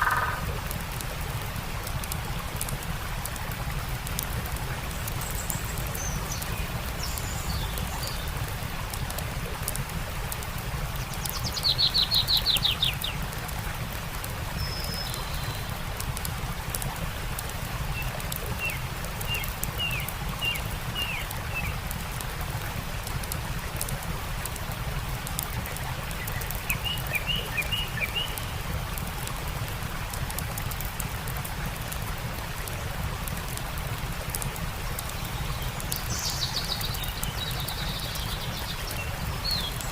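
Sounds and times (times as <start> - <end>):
birds trilling and chirping: 0.0 - 0.5
campfire crackling: 0.0 - 39.9
stream rushing: 0.0 - 39.9.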